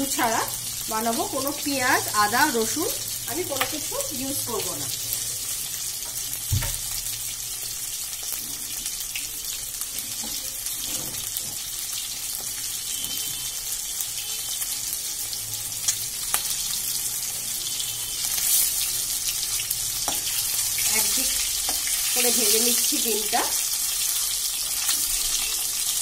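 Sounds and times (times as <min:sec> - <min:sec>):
oil sizzling: 0:00.0 - 0:26.0
spatula moving in pan: 0:08.2 - 0:14.7.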